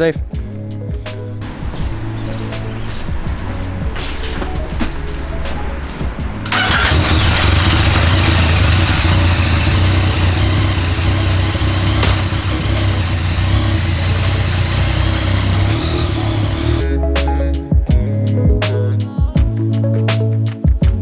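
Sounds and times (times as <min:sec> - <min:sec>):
motorcycle engine starting and idling: 0:01.4 - 0:16.9.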